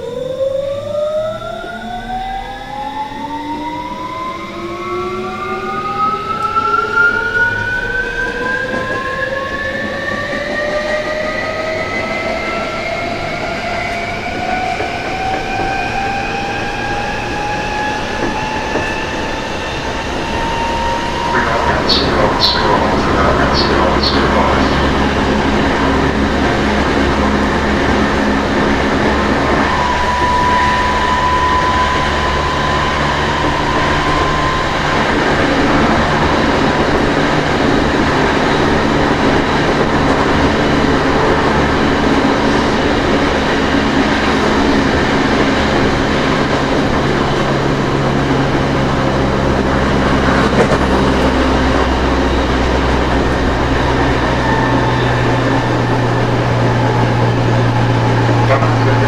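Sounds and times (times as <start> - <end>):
train motor and inverter tones: 0.0 - 59.0
wheels rumbling on rails: 0.0 - 59.0.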